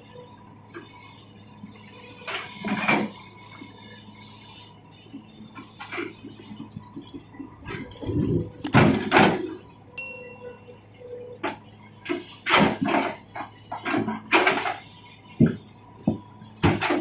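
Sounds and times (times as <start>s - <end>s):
high ringing tone: 9.5s - 12.0s.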